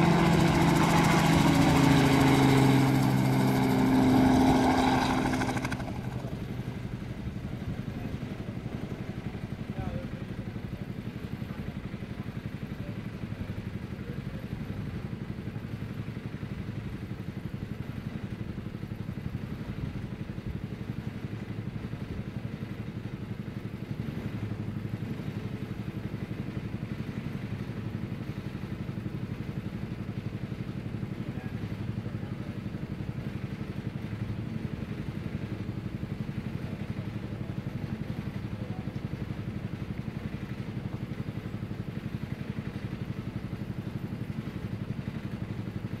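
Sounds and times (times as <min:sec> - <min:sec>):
helicopter engine and rotor: 0:00.0 - 0:46.0.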